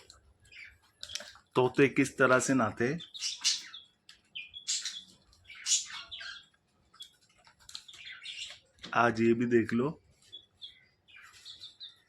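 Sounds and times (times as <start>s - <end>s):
parakeets chirping: 0.4s - 1.4s, 2.3s - 8.7s, 10.2s - 12.0s.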